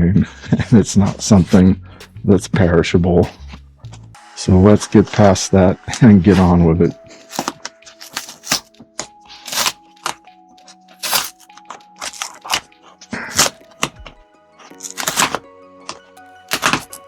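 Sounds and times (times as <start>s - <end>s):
soft background music: 0.0s - 17.0s
cardboard package being opened: 7.2s - 15.4s, 16.4s - 17.0s.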